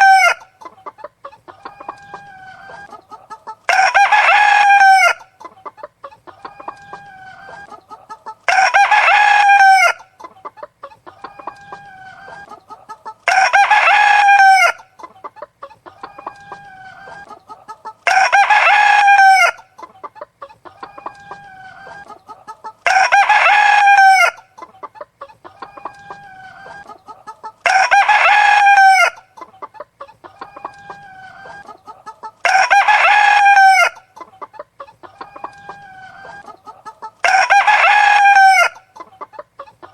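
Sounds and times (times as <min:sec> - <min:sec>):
hen clucking: 0:00.0 - 0:39.9
rooster crowing: 0:03.7 - 0:05.3, 0:08.5 - 0:10.1, 0:13.3 - 0:14.9, 0:18.0 - 0:19.7, 0:22.8 - 0:24.4, 0:25.6 - 0:29.2, 0:32.4 - 0:34.0, 0:35.1 - 0:38.8.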